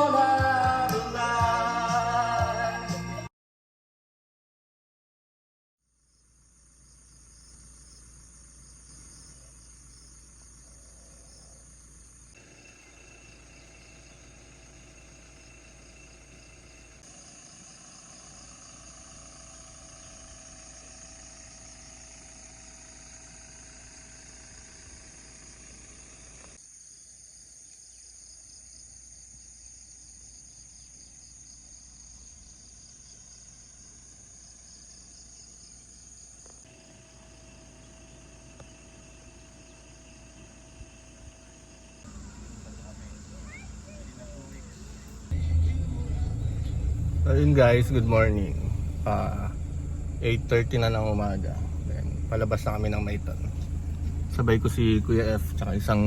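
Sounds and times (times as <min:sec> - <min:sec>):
insects trilling: 0:05.9 - 0:56.0
faint low hum: 0:30.8 - 0:56.0.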